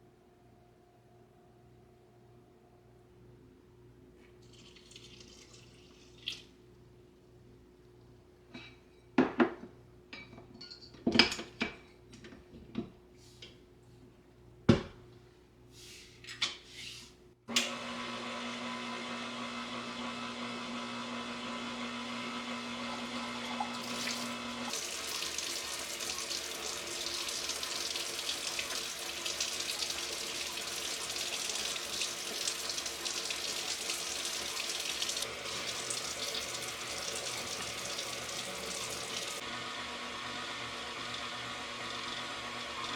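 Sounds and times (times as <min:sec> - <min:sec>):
running water rushing: 0:23.2 - 0:39.4.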